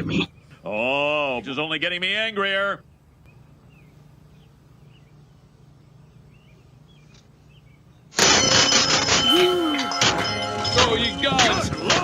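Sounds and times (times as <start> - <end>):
low steady hum and hiss: 0.0 - 8.1.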